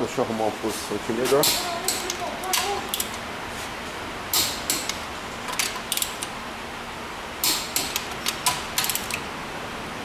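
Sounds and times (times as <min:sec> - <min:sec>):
low background hum: 0:00.0 - 0:10.0
short sharp clicks and rattles: 0:07.4 - 0:09.2.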